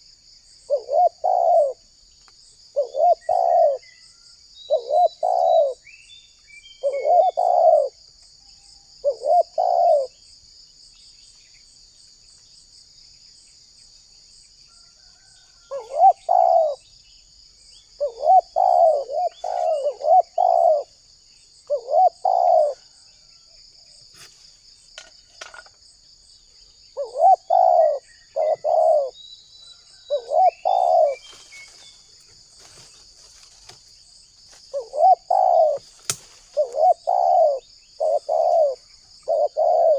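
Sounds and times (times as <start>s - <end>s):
high insect drone: 0.0s - 39.9s
dove cooing: 0.7s - 1.8s, 2.7s - 3.8s, 4.7s - 5.8s, 6.8s - 8.0s, 9.0s - 10.2s, 15.7s - 16.8s, 18.0s - 21.0s, 21.6s - 23.1s, 27.0s - 29.2s, 30.1s - 31.3s, 34.7s - 35.9s, 36.5s - 39.9s.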